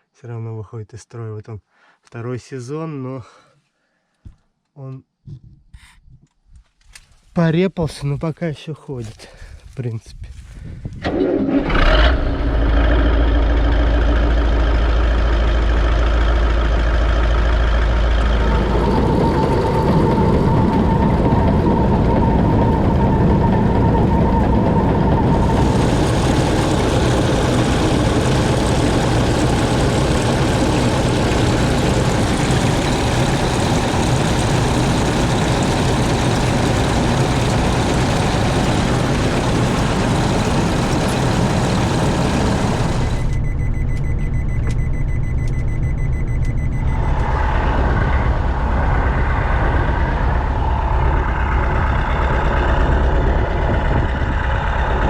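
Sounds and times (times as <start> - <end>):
loud rushing mechanical noise: 11.0 - 43.4, 46.6 - 55.0
harvester engine drone: 11.0 - 55.0.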